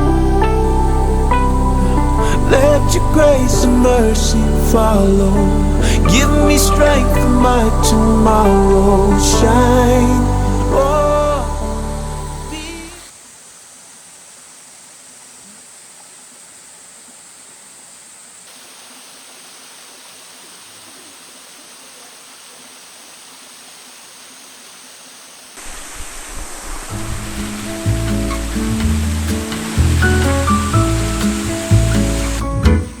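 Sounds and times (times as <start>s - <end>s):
music: 0.0s - 13.1s, 27.0s - 33.0s
waterfall rushing: 0.0s - 14.2s, 18.5s - 33.0s.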